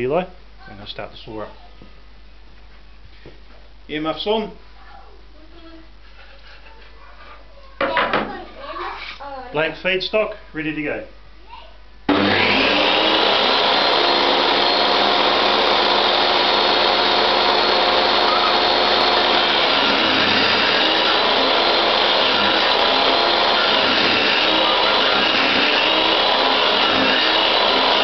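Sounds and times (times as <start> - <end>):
table saw whining: 12.1 - 28.0.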